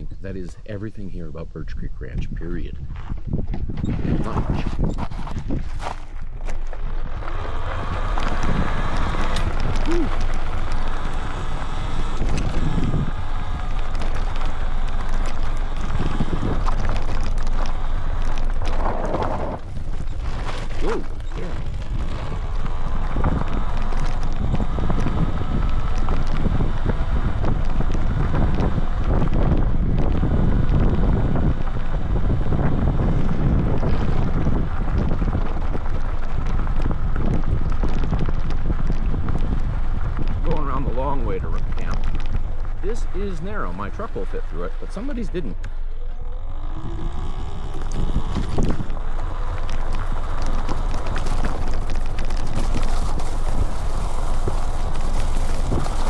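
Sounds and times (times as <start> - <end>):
wind buffeting microphone: 0.0 - 56.0
bike knocks and rattles: 47.1 - 56.0.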